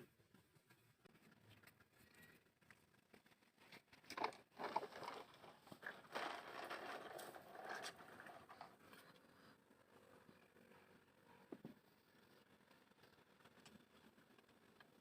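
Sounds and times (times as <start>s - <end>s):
plastic toy trucks scraping: 3.5s - 10.2s.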